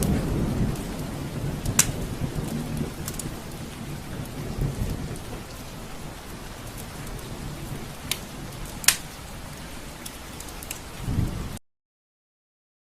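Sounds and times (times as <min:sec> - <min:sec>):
rain on window glass: 0:00.0 - 0:11.6
drop ticks: 0:08.8 - 0:09.0.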